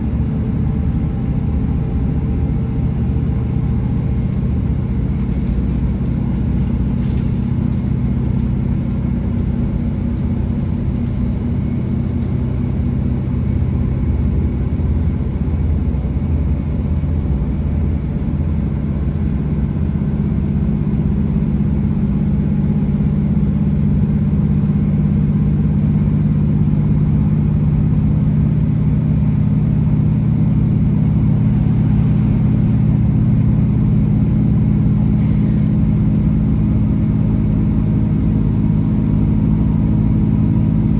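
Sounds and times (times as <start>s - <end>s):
train diesel engine droning: 0.0s - 40.9s.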